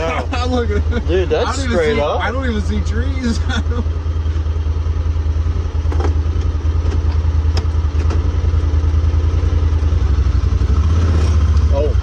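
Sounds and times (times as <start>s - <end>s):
utility vehicle engine idling: 0.0s - 12.0s.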